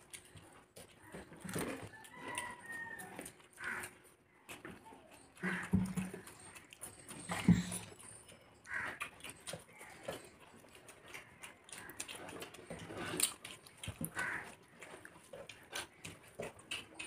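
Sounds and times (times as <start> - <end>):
wet open-mouthed chewing: 0.0 - 17.0.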